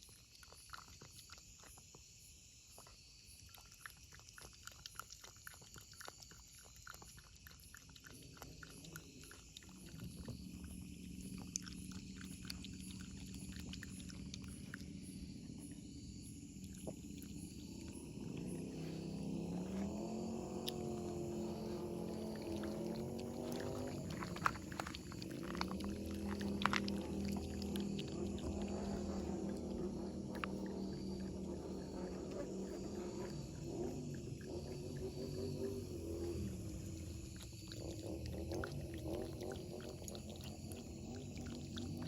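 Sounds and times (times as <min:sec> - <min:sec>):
cat eating crunchily: 0:00.0 - 0:42.0
low hum: 0:08.6 - 0:42.0.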